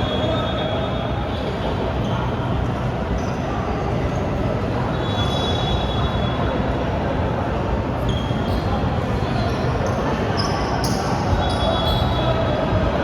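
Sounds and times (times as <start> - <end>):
crowd noise in hall: 0.0 - 13.0
high shoe squeaks: 8.0 - 8.7, 9.6 - 12.5.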